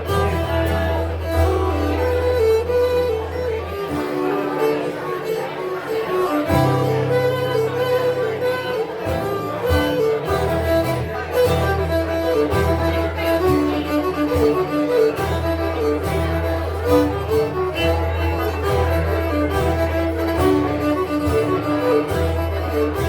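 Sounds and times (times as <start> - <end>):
instrumental folk music: 0.0 - 23.0.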